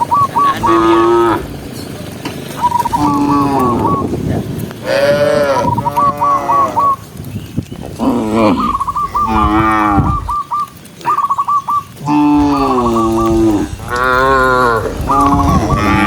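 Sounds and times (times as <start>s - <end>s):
cattle mooing: 0.4s - 1.6s, 4.8s - 7.0s, 8.0s - 10.3s, 12.0s - 16.0s.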